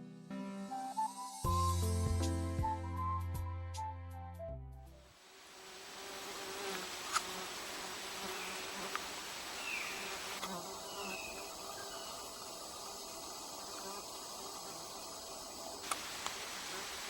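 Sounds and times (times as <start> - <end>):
insects buzzing: 5.2 - 17.0
sharp clicks: 15.8 - 16.4.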